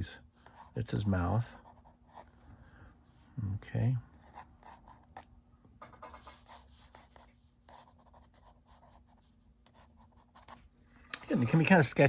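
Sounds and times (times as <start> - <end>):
pencil scratching on paper: 0.4 - 2.4, 4.2 - 5.2, 6.0 - 10.6.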